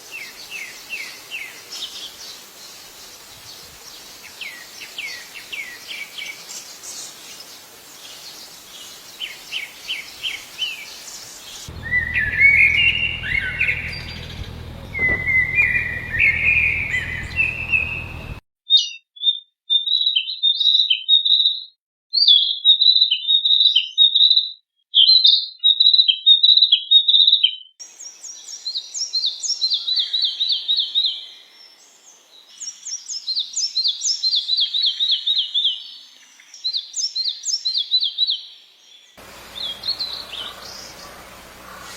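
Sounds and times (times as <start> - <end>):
songbirds singing: 0.0 - 41.9
low hum: 11.7 - 18.4, 39.2 - 41.9.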